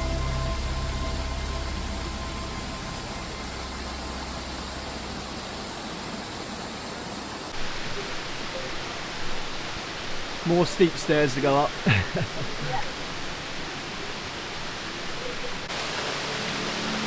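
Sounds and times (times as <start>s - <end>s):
background music: 0.0s - 5.7s
waterfall rushing: 0.0s - 17.0s.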